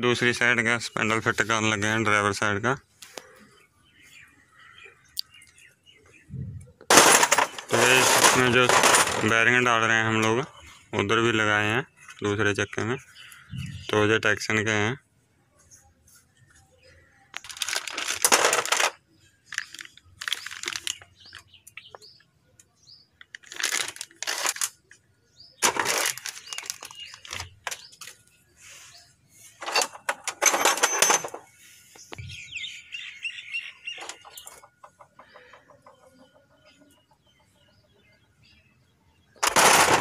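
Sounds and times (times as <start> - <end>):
birds chirping faintly: 0.0 - 40.0
metal-on-metal rattling: 6.9 - 10.4, 25.6 - 27.8, 29.6 - 31.5, 39.4 - 40.0.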